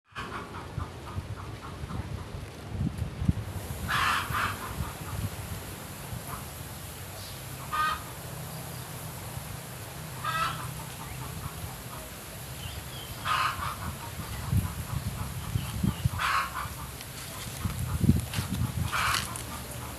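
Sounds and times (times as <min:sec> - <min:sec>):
bird clucking calls: 0:00.1 - 0:02.3, 0:03.9 - 0:05.3, 0:07.2 - 0:08.3, 0:10.1 - 0:19.9.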